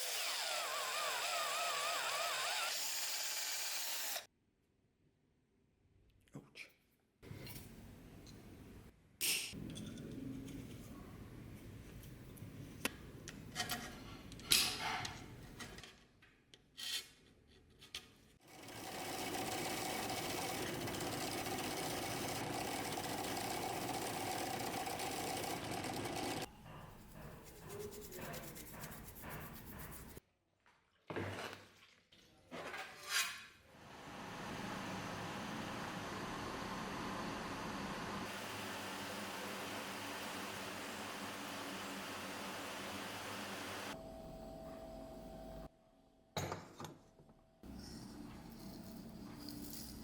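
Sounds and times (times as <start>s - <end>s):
small motor-driven tool running: 0.0s - 4.3s, 18.5s - 26.5s.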